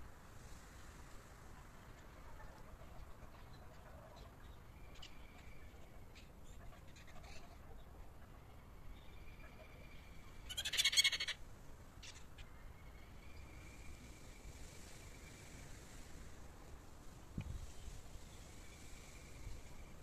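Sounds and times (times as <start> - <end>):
bird chattering call: 10.5 - 11.4.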